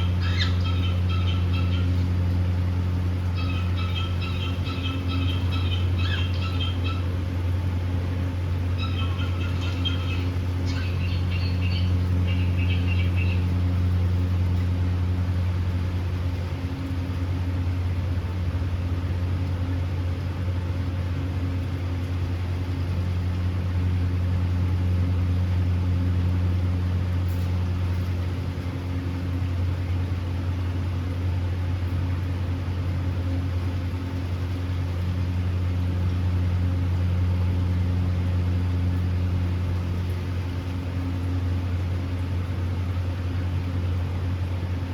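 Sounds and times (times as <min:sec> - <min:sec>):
cockatiels chirping: 0:00.0 - 0:02.0, 0:03.4 - 0:07.0, 0:08.8 - 0:13.4
low appliance hum: 0:00.0 - 0:44.9.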